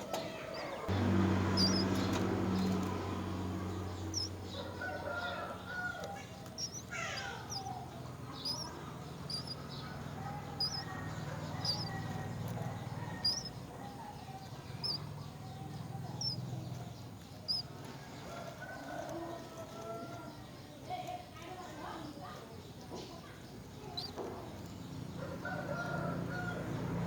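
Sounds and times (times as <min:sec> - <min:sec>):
small birds chirping: 0:00.0 - 0:27.0
fainter lower bird calls: 0:00.1 - 0:19.0
low steady hum: 0:00.9 - 0:04.6.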